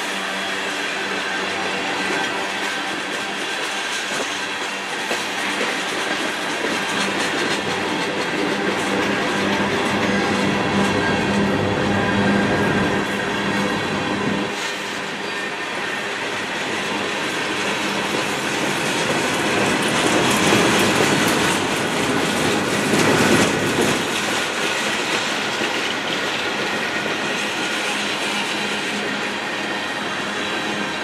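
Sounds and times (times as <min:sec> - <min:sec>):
freight train wheels on rails: 0:00.0 - 0:31.0.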